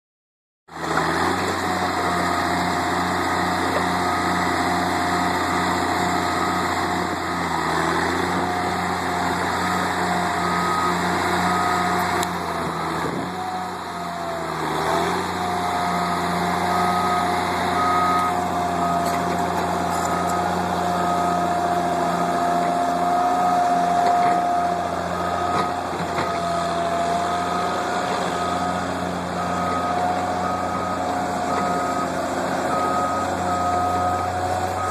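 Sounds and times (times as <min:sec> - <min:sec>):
heavy machine engine whining: 0:00.7 - 0:34.9
reversing alarm beeping: 0:03.8 - 0:07.6, 0:09.5 - 0:12.8, 0:15.7 - 0:34.9.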